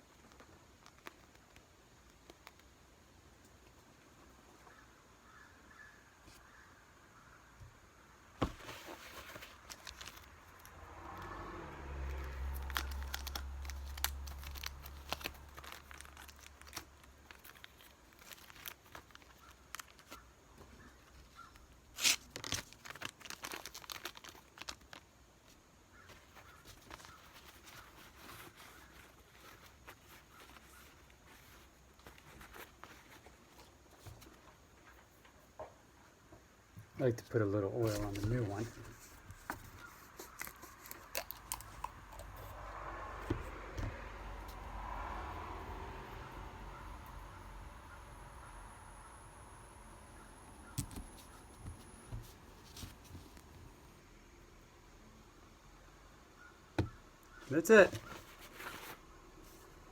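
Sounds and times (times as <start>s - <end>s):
small clicks and crinkling: 0.0s - 4.2s, 9.0s - 10.8s, 12.1s - 35.4s, 37.8s - 42.6s.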